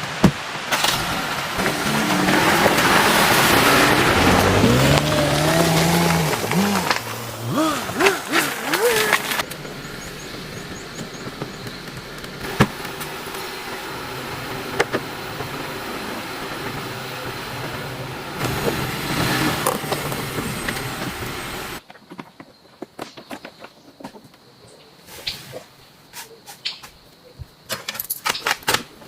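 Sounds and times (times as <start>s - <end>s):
vehicle driving hum: 0.0s - 21.8s.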